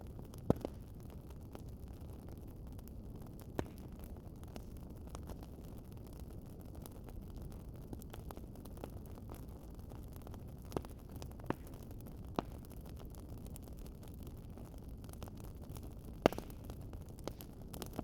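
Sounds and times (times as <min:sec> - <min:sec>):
wood fire crackling: 0:00.0 - 0:18.0
sharp pops from fire: 0:00.1 - 0:01.6, 0:03.4 - 0:05.5, 0:10.2 - 0:13.2, 0:14.5 - 0:18.0.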